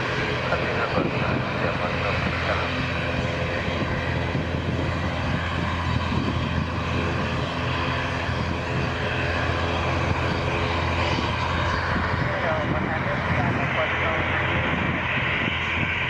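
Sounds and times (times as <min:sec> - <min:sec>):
airliner engines running: 0:00.0 - 0:16.0.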